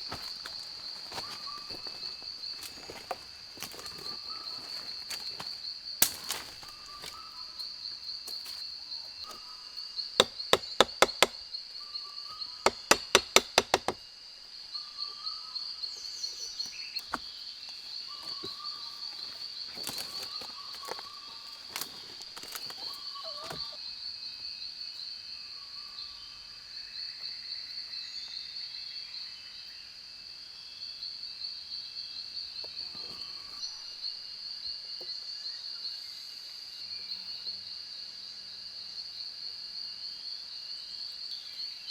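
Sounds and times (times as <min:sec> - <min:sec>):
insects droning: 0:00.0 - 0:41.9
sharp knocks or chops: 0:10.2 - 0:11.4, 0:12.7 - 0:14.0.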